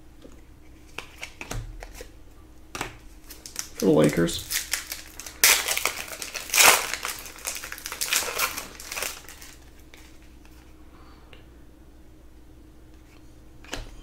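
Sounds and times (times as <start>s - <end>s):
wrapper crinkling: 3.2s - 10.3s.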